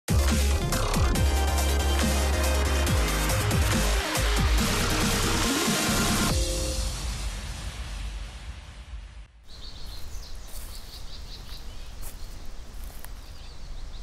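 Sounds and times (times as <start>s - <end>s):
small birds chirping: 9.4s - 14.0s.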